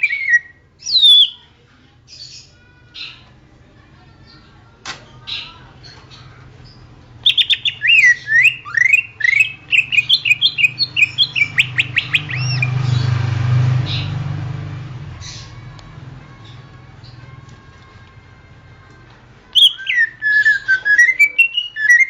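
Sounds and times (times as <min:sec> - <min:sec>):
bird singing chips and whistles: 0:00.0 - 0:01.4, 0:07.2 - 0:12.8, 0:19.6 - 0:22.0.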